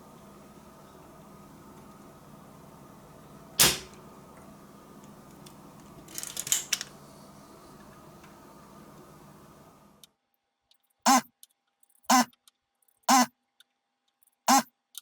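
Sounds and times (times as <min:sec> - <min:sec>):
clatter of small clicks: 0:05.0 - 0:07.0.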